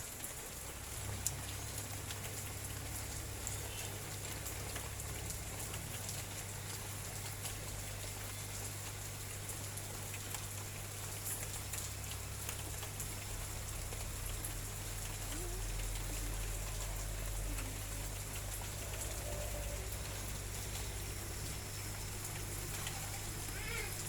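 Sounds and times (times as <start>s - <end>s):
low steady hum: 10.6s - 23.7s.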